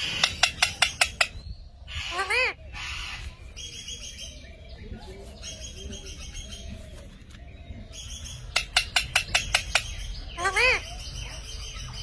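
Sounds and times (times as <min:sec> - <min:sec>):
parrot chattering: 0:00.0 - 0:01.4, 0:08.5 - 0:10.9
shrill parrot calls: 0:10.4 - 0:10.9.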